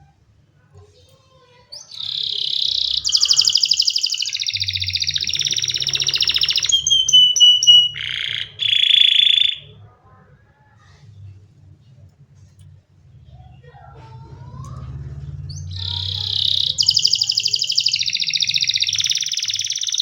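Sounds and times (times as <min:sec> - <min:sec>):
canary singing: 0:01.4 - 0:09.8, 0:13.4 - 0:20.0.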